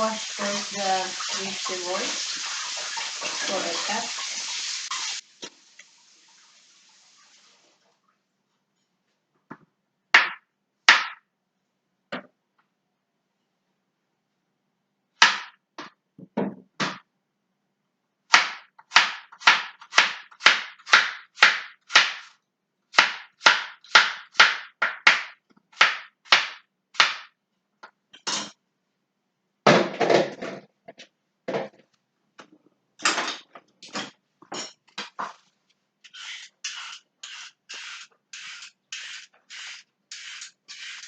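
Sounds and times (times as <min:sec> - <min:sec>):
knife chopping on cutting board: 0:18.3 - 0:22.3.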